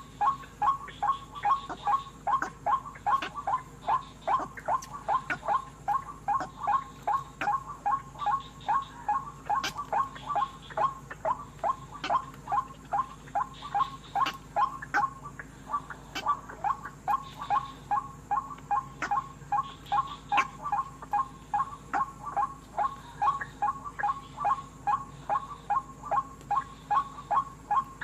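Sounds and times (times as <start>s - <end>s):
waterhen calling: 0.0s - 28.0s.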